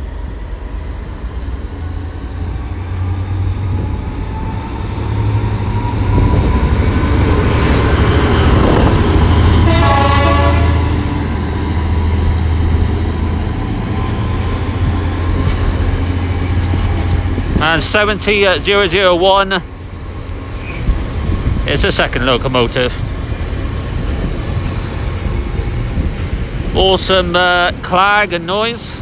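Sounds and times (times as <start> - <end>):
diesel locomotive engines droning: 0.0 - 29.0
train horn blast: 9.5 - 11.3.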